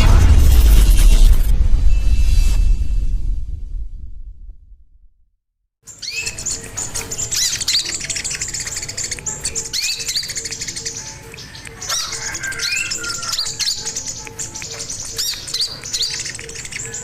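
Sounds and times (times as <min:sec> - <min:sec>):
faint low pip: 0:00.0 - 0:05.2
songbird chirping and whistling: 0:05.9 - 0:17.0.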